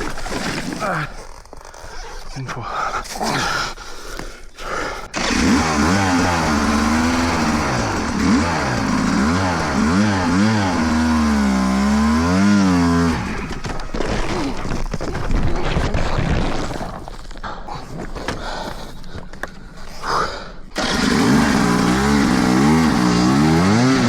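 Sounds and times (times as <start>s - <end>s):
dirt bike engine revving: 5.2s - 13.7s, 20.8s - 24.0s.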